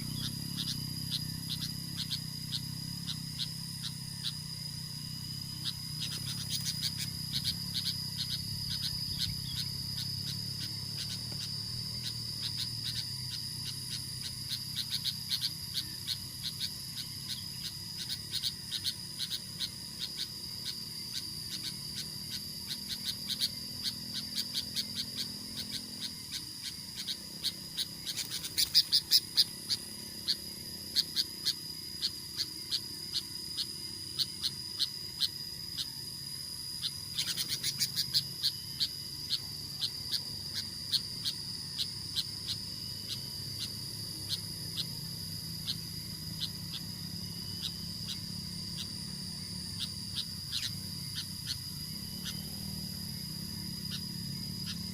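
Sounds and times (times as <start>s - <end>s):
insect drone: 0.0s - 54.9s
ticking calls: 5.6s - 35.9s.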